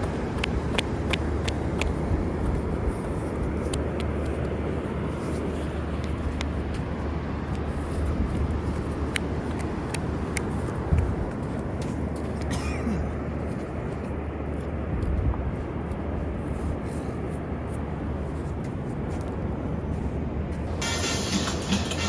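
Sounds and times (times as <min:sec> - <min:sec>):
wind on microphone: 0:00.0 - 0:12.2, 0:14.6 - 0:19.4
surf rumble: 0:00.0 - 0:22.0.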